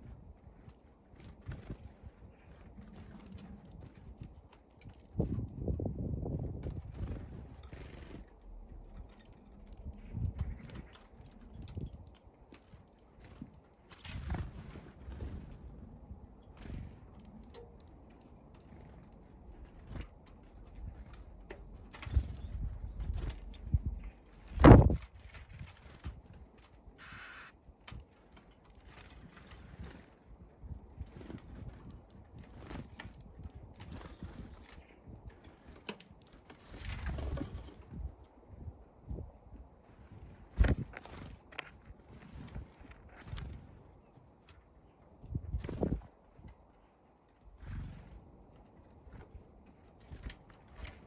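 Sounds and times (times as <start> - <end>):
birds pecking and landing taps: 0.1 - 38.4, 40.1 - 46.6, 47.2 - 51.0
high bird chirps: 27.0 - 27.6.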